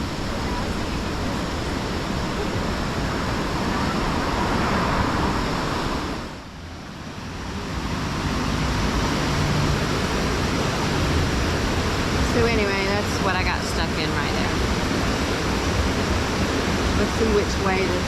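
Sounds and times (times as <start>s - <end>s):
whitewater rapids roaring: 0.0s - 18.0s.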